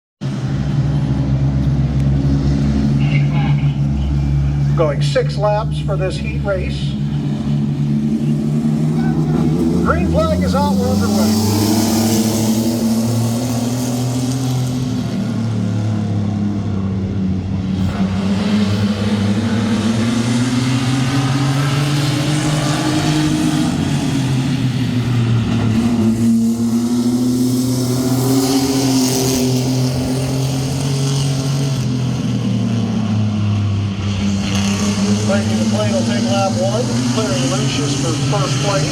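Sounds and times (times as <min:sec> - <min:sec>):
race truck engines revving: 0:00.2 - 0:38.9.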